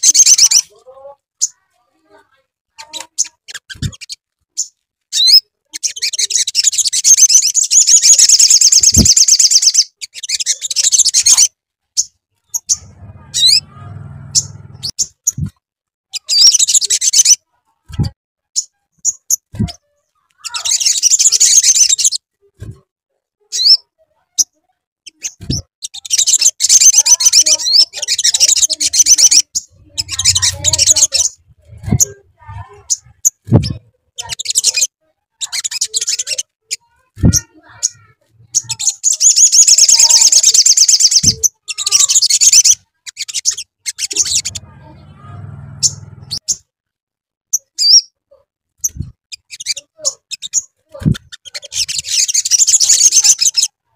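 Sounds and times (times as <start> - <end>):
bird rising chirps: 12.5 - 15.5, 28.1 - 32.1, 43.9 - 46.6
faint low hum: 12.7 - 15.0, 44.4 - 46.4
bird high-pitched trills: 25.1 - 46.6.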